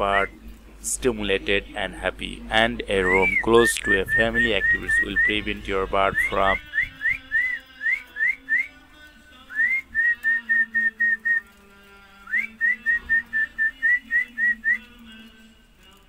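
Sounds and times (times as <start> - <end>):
whistled melody: 3.0 - 8.8, 9.5 - 11.6, 12.2 - 15.0.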